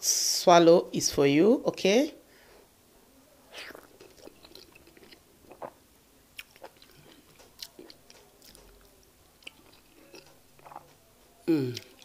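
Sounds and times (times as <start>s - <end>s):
person chewing wet food: 3.5s - 12.0s.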